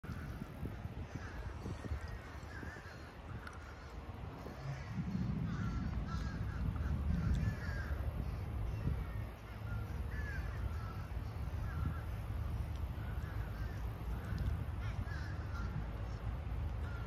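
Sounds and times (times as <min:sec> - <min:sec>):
birds calling: 0:00.0 - 0:17.0
low outdoor rumble: 0:00.0 - 0:17.0.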